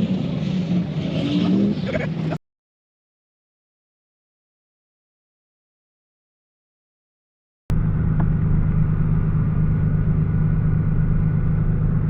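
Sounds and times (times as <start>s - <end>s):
car engine running steadily: 7.7s - 12.0s.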